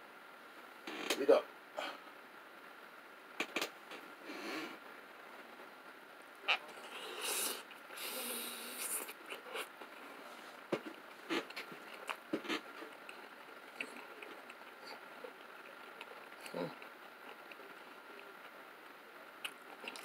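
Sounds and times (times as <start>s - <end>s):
person chewing pizza: 6.7s - 10.2s, 10.9s - 18.5s, 19.4s - 20.0s.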